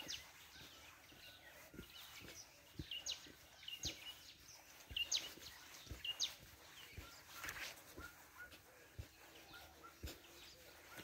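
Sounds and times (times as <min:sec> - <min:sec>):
bird calling: 0:00.0 - 0:11.0
soft footsteps: 0:00.0 - 0:11.0.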